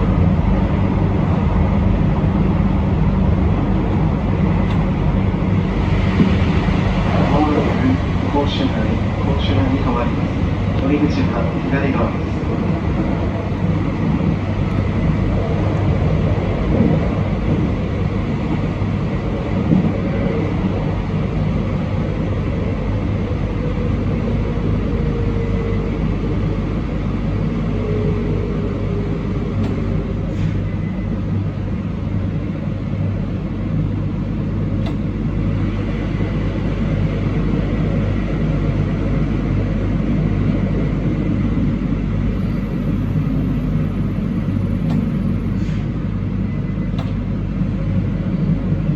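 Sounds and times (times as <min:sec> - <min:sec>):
train wheels rumbling on rails: 0:00.0 - 0:48.9
faint clicks: 0:34.8 - 0:35.1, 0:44.8 - 0:45.3, 0:47.0 - 0:47.3
faint wavering whine: 0:42.0 - 0:48.9.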